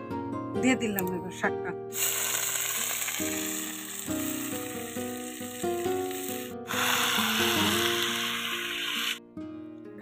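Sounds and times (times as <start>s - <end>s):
vegetables sizzling in hot oil: 1.9s - 9.2s
light instrumental tune: 3.2s - 10.0s.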